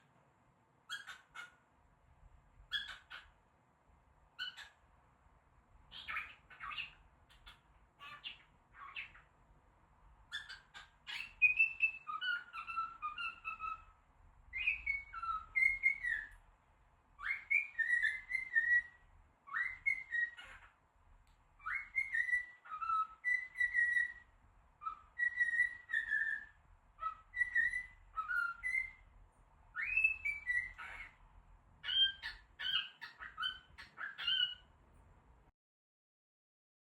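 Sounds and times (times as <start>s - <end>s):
cockatiel chirping and whistling: 0.9s - 1.6s, 2.7s - 3.3s, 4.4s - 4.8s, 5.9s - 9.3s, 10.3s - 16.4s, 17.2s - 20.8s, 21.6s - 29.1s, 29.7s - 31.2s, 31.8s - 34.7s.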